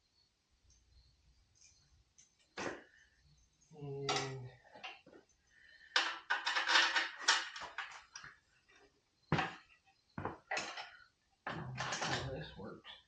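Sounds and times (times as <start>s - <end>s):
small metal parts clinking: 5.9s - 8.2s
metal clanks: 10.4s - 12.5s.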